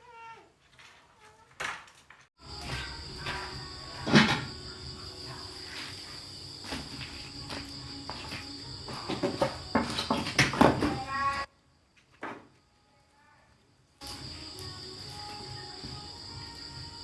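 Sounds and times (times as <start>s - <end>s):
insect trilling: 14.0s - 17.0s.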